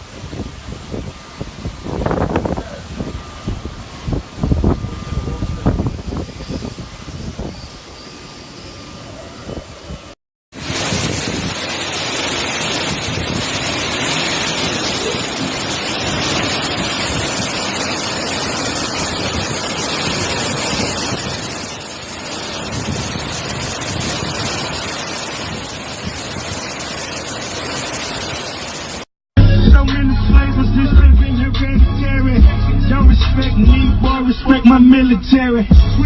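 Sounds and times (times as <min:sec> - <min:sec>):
wind gusts buffeting microphone: 0:00.0 - 0:08.0, 0:08.9 - 0:29.0
hurricane wind rushing: 0:00.0 - 0:29.1.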